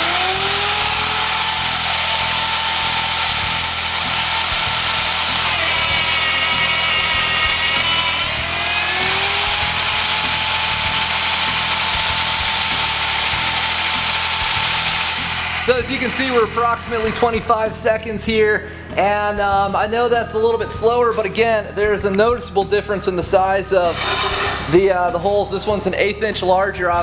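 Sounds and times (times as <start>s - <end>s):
drill motor whining: 0.0s - 17.4s, 23.7s - 24.9s.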